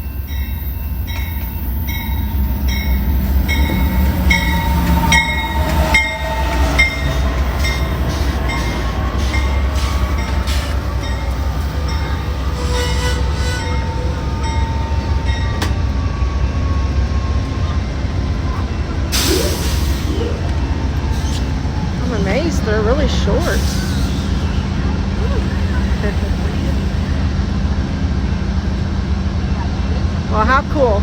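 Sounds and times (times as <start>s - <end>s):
train rumbling: 0.0s - 31.0s
thin squeals: 0.7s - 15.6s, 18.5s - 27.1s.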